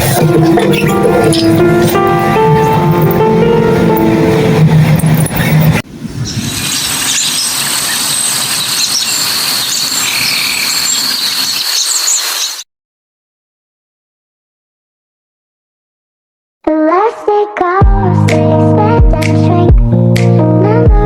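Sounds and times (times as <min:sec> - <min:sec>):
background music: 0:00.0 - 0:05.8
steady outdoor hiss: 0:05.9 - 0:12.6.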